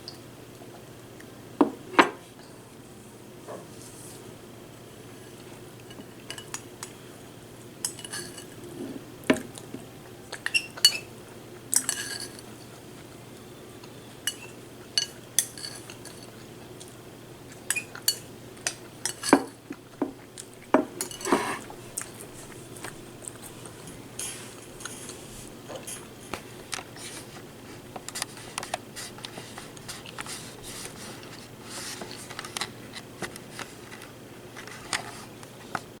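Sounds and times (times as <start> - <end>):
cereal being chewed: 21.6 - 35.3.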